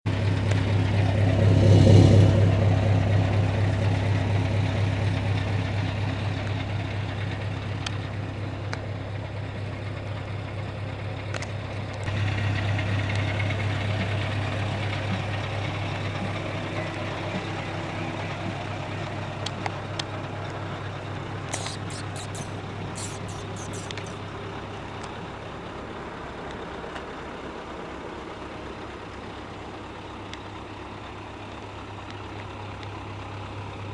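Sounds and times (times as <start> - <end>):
diesel engine running: 0.1 - 33.9
short clicks: 21.5 - 24.2.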